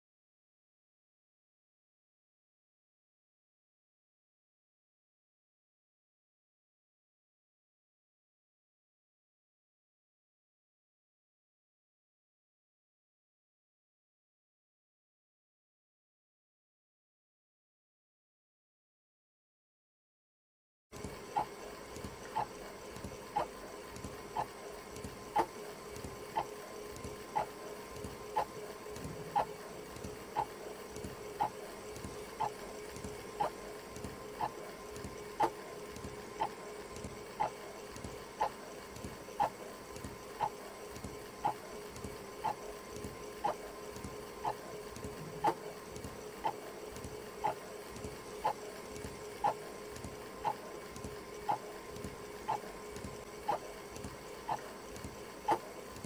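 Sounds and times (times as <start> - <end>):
steady low hum: 21.0 - 56.0
alarm clock ticking: 30.2 - 33.6, 51.4 - 51.7.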